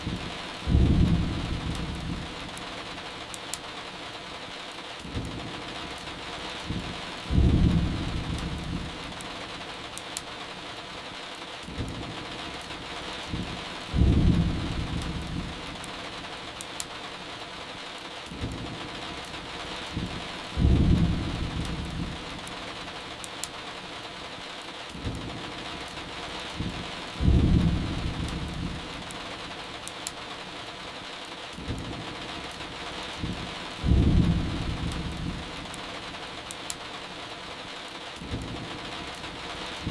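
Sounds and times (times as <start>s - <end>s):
thunder rumbling: 0.0s - 2.5s, 6.7s - 9.2s, 13.3s - 15.9s, 19.8s - 22.4s, 26.6s - 29.0s, 33.2s - 35.7s, 39.5s - 39.9s
burning firewood crackling: 0.0s - 39.9s
steady rain: 0.0s - 39.9s.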